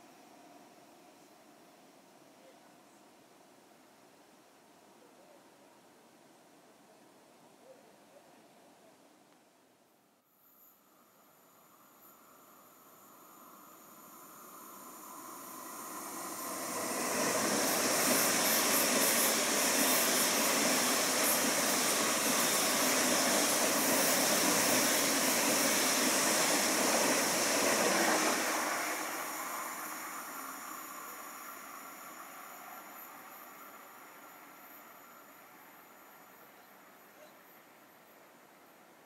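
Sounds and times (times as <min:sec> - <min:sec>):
train passing: 0:10.4 - 0:39.0.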